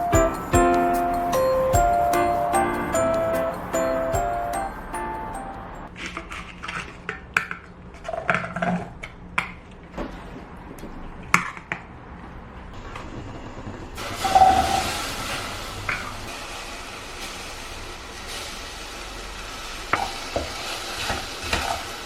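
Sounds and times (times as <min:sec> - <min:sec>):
steady hiss: 0:14.0 - 0:22.0.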